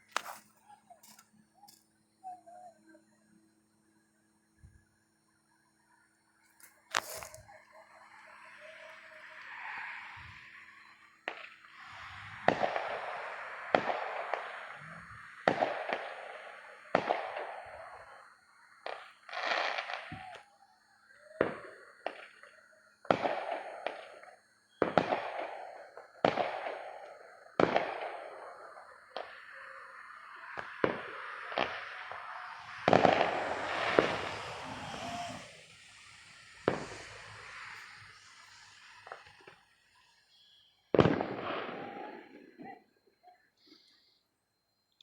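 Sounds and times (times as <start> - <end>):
hissing crackle: 6.6 - 42.5
fireworks bangs: 10.1 - 20.6, 21.2 - 42.9.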